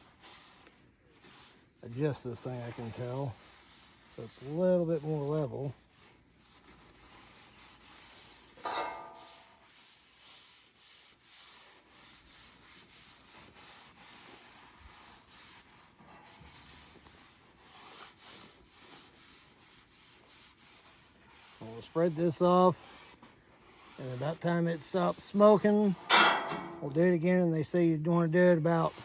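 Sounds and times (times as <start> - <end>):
scraping on steel griddle: 0.3 - 17.1, 21.5 - 27.5.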